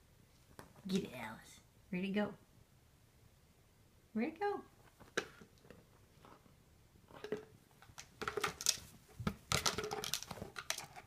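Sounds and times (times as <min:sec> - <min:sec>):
plastic jar clattering and scraping: 0:07.1 - 0:11.0.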